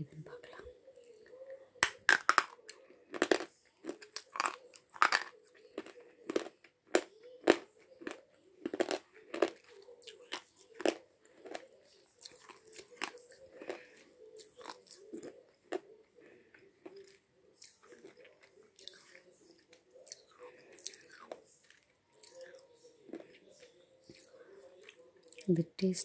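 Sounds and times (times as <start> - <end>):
person chewing hard pencil: 1.2 - 25.5.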